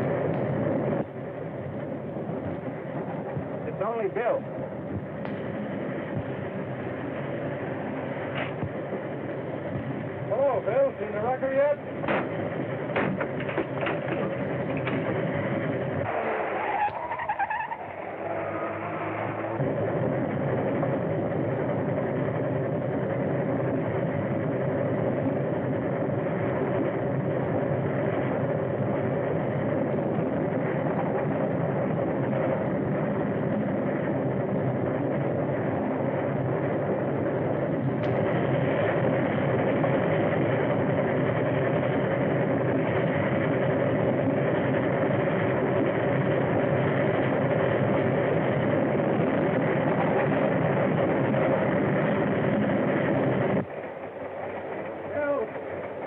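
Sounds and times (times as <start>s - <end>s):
moving train running noise: 0.0s - 56.0s.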